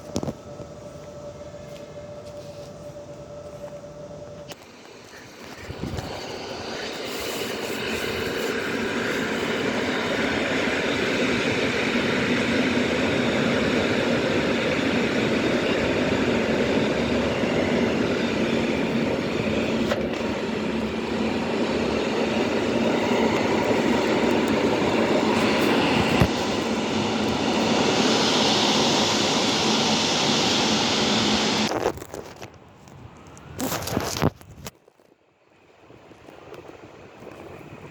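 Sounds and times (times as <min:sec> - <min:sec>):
train wheels rumbling on rails: 0:04.4 - 0:32.6
bright hiss: 0:04.6 - 0:12.1.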